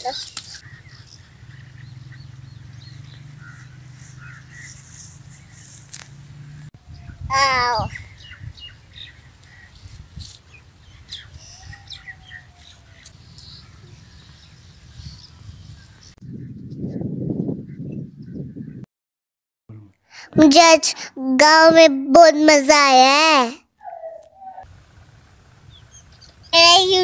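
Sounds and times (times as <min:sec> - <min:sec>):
small birds chirping: 0:00.0 - 0:18.8, 0:23.8 - 0:24.7, 0:25.6 - 0:27.0
loud wavering bird call: 0:23.8 - 0:24.7.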